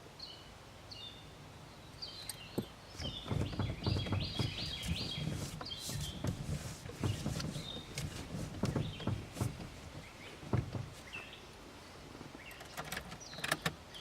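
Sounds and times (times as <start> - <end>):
small birds chirping: 0.2 - 14.0
rustling: 2.3 - 11.4
low knocks: 2.6 - 11.2.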